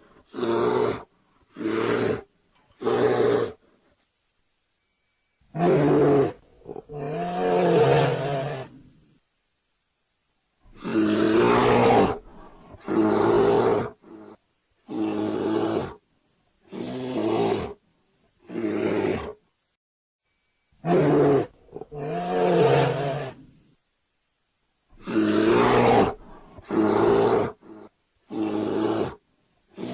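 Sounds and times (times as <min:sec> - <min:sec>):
bear roaring and growling: 0:00.2 - 0:03.6, 0:05.5 - 0:08.9, 0:10.7 - 0:16.0, 0:18.4 - 0:19.4, 0:20.8 - 0:23.6, 0:25.0 - 0:29.9.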